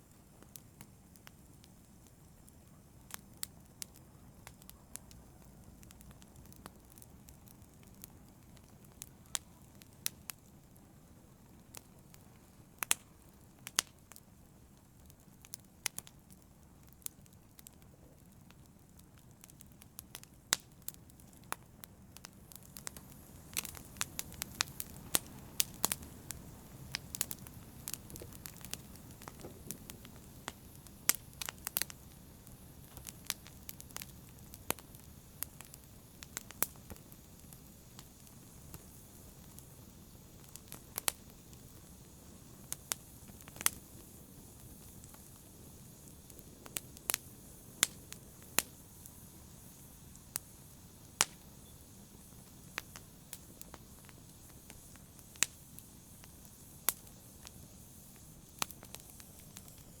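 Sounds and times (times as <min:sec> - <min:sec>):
logs crackling and popping: 0:00.1 - 1:00.0
fire flames rumbling: 0:03.0 - 1:00.0.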